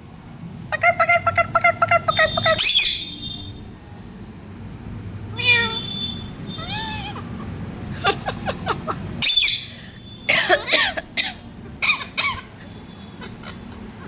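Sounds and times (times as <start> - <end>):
parrot chirping and squawking: 1.1 - 3.2, 5.3 - 8.2, 9.1 - 13.8
parrot high screech: 2.5 - 3.2, 5.4 - 7.3, 9.2 - 9.8.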